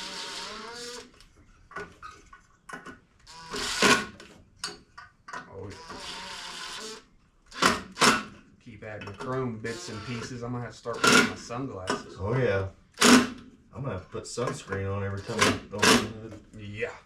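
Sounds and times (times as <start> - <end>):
handheld power tool motor: 0.0 - 1.2, 3.3 - 4.2, 5.7 - 8.3.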